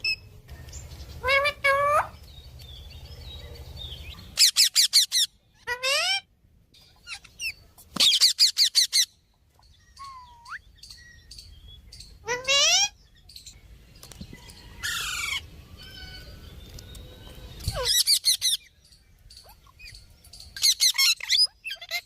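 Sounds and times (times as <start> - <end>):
parrot calls and whistles: 9.9 - 10.7.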